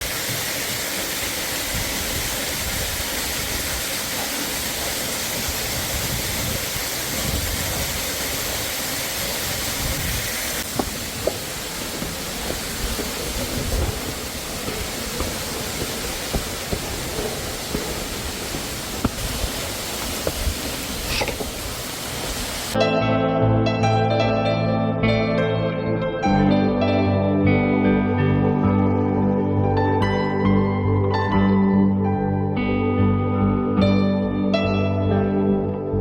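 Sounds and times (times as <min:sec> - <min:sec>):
water rushing: 0:00.0 - 0:22.8
sharp taps or drips: 0:10.6 - 0:21.7.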